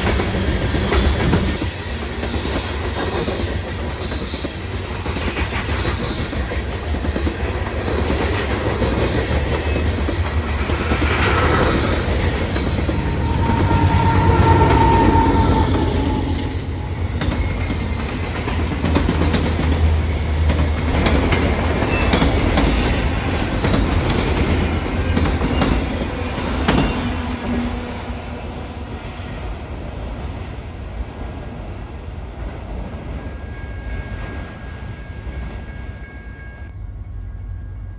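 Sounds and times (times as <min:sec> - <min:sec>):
train rumbling on rails: 0:00.0 - 0:37.9
high-pitched wheel squeal: 0:11.3 - 0:17.7.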